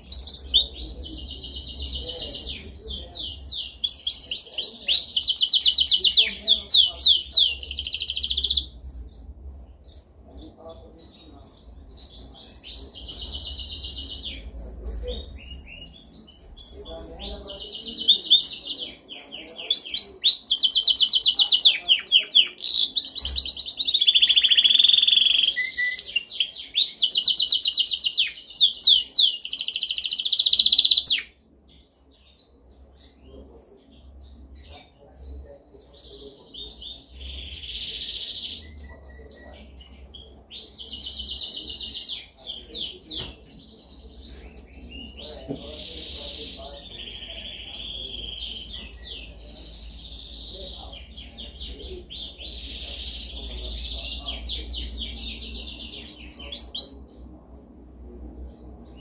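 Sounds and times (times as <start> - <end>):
canary singing trills: 0.0 - 57.4.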